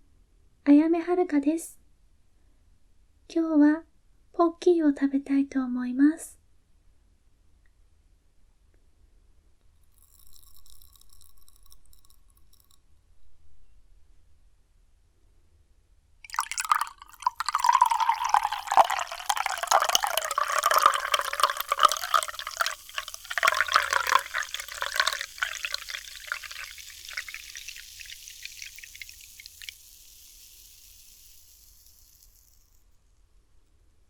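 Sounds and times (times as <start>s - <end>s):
liquid pouring with crackle: 9.9s - 12.8s, 16.3s - 32.8s.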